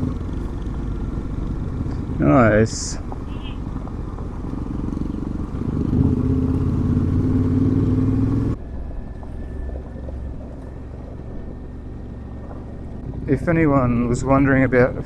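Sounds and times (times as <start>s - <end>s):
steady low rumble: 0.0s - 7.6s, 8.5s - 15.0s
motorcycle engine running: 0.0s - 8.6s.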